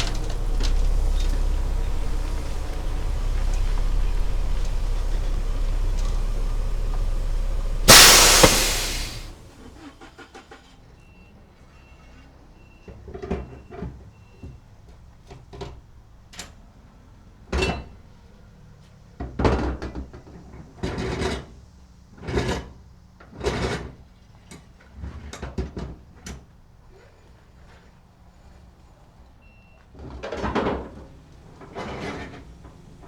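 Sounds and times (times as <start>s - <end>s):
low engine hum: 0.0s - 9.9s.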